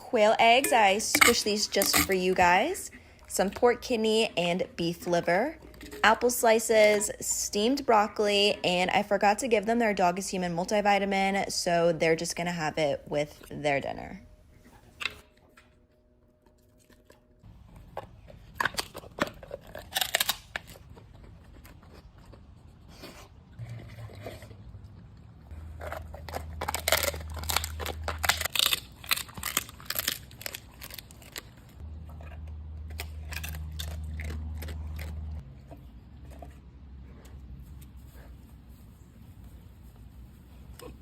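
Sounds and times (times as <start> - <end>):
dogs chewing and crunching: 0.0 - 41.0
tearing sounds: 18.6 - 24.6, 25.6 - 35.4.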